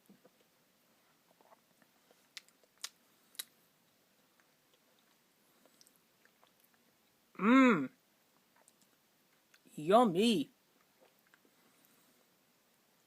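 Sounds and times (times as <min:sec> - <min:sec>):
quiet chewing: 0:00.1 - 0:07.2, 0:08.3 - 0:09.7, 0:10.8 - 0:12.4.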